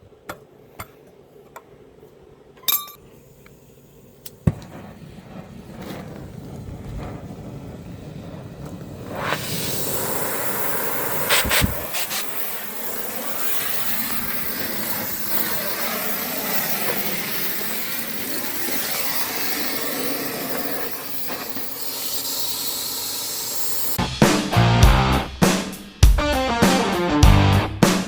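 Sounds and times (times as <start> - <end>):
cutting torch hissing: 3.2 - 24.0
sharp pops: 4.2 - 4.9, 8.6 - 23.9.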